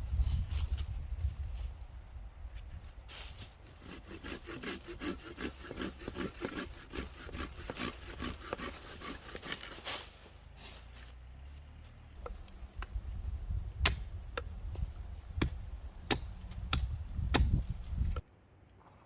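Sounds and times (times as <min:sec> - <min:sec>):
hand saw cutting wood: 0:03.2 - 0:10.3.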